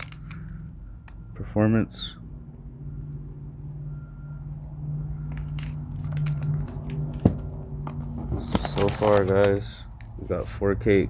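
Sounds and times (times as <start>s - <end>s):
cardboard clicks and knocks: 6.0s - 9.6s.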